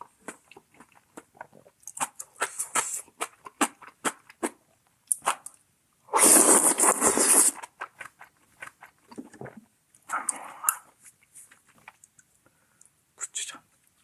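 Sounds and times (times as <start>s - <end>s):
wet chewing clicks: 0.0s - 5.6s, 6.4s - 12.3s
loud noodle slurp: 6.1s - 9.5s.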